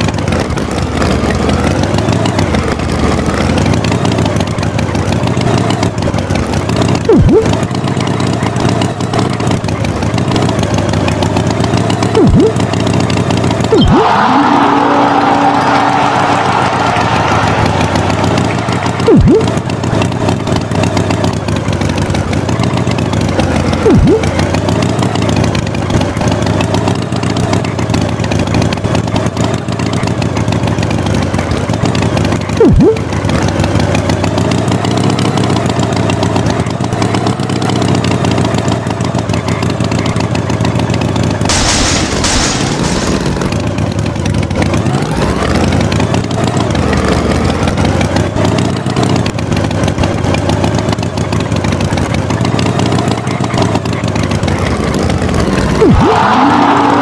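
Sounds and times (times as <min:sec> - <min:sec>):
tractor engine running: 0:00.0 - 0:57.0
sharp downward sweeps: 0:13.7 - 0:19.6.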